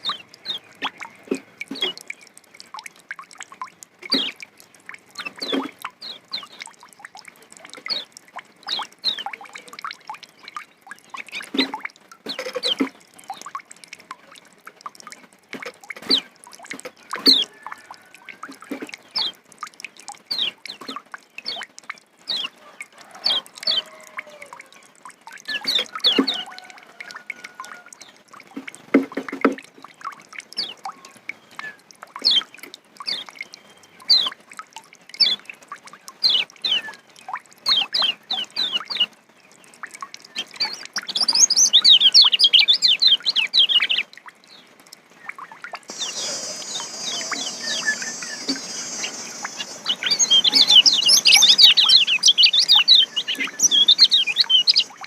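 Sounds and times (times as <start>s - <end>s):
bird chirping and twittering: 0.0s - 1.1s, 4.1s - 4.4s, 5.2s - 6.8s, 7.8s - 13.6s, 40.3s - 44.1s, 45.2s - 55.0s.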